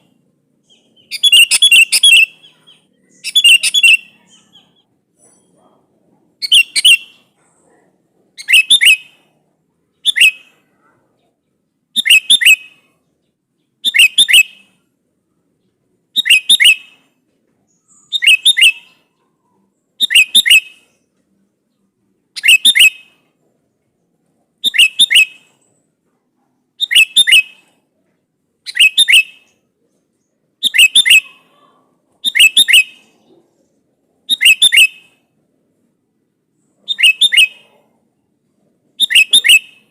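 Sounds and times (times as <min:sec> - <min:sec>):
bird calling: 0:00.0 - 0:05.8, 0:06.4 - 0:07.4, 0:17.7 - 0:21.0, 0:24.6 - 0:25.7, 0:26.8 - 0:27.8, 0:28.6 - 0:29.6, 0:30.6 - 0:35.2, 0:36.8 - 0:38.0, 0:38.9 - 0:39.9.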